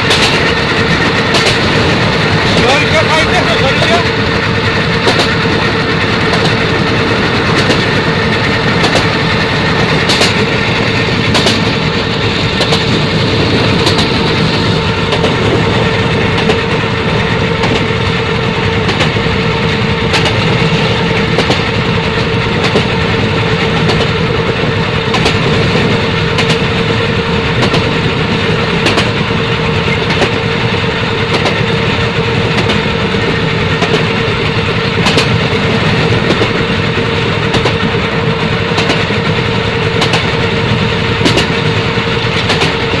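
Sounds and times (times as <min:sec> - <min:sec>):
train rumbling on track: 0:00.0 - 0:43.0
wheels clicking over rail joints: 0:00.0 - 0:43.0.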